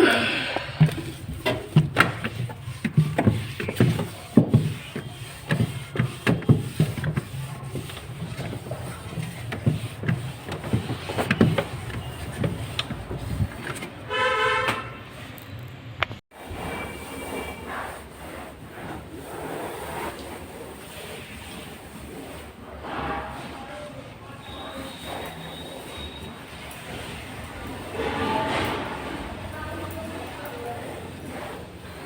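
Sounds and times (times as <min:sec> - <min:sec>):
cloth wiping: 0:00.0 - 0:14.3, 0:16.4 - 0:22.7
clicks and knocks on shelves: 0:00.8 - 0:14.0
vehicle horn honking: 0:14.1 - 0:15.1, 0:28.0 - 0:29.0.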